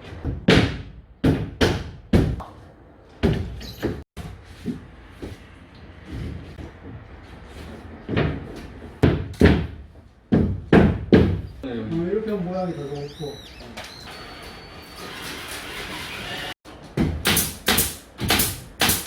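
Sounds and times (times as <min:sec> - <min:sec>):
nail gun shots: 0:17.2 - 0:19.0.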